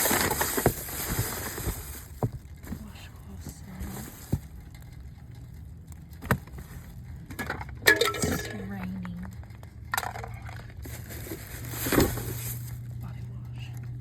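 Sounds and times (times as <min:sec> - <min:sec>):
hard objects clinking: 0:07.2 - 0:12.9.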